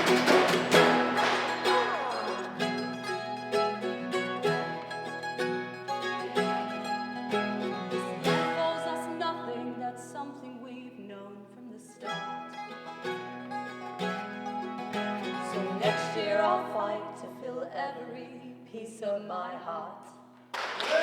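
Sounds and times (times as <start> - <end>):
acoustic guitar strumming: 0.0 - 10.0, 12.0 - 17.3.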